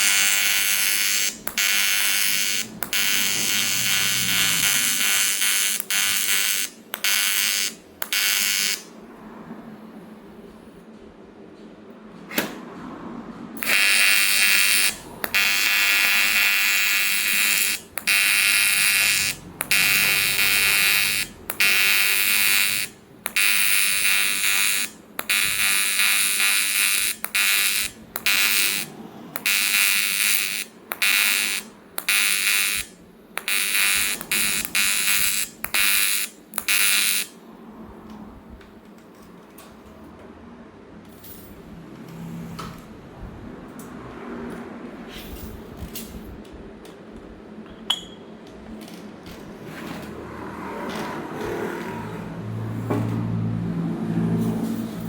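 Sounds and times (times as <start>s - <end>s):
welding arc buzzing: 0.0s - 8.9s, 13.6s - 37.4s.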